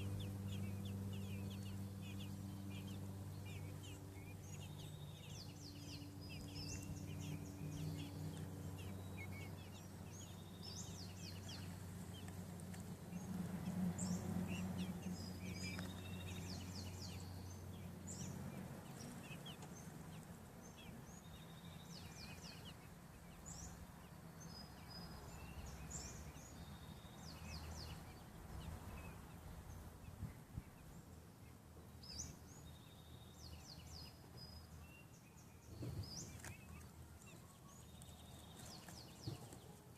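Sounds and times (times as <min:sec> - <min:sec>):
low droning hum: 0:00.0 - 0:26.5
birds chirping and peeping: 0:00.0 - 0:39.9.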